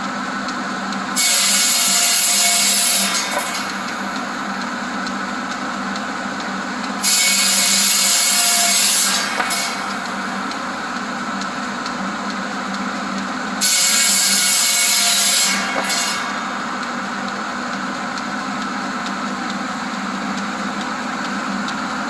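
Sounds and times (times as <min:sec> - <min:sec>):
saw cutting wooden boards: 0:01.2 - 0:04.2, 0:07.0 - 0:10.4, 0:13.6 - 0:17.0
buzz saw running: 0:01.2 - 0:04.3, 0:07.0 - 0:10.6, 0:13.6 - 0:17.3.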